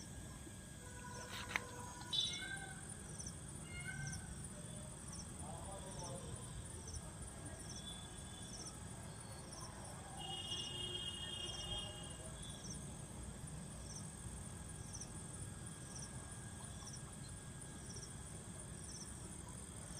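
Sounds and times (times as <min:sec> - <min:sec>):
crickets chirping: 0:00.0 - 0:19.9
steady insect trill: 0:00.0 - 0:19.9.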